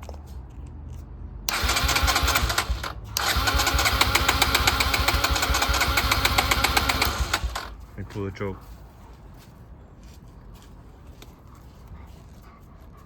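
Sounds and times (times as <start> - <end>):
electric starter cranking engine: 1.5 - 7.8.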